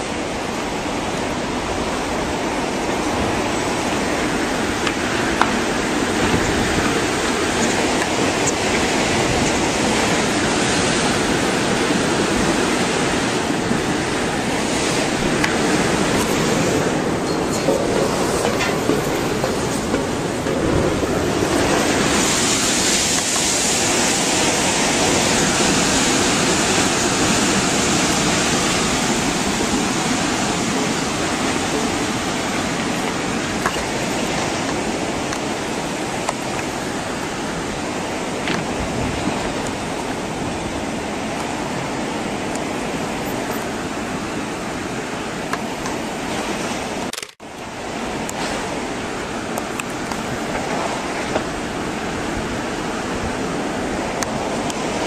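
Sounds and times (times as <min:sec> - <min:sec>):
steady rushing noise: 0:00.0 - 0:55.0.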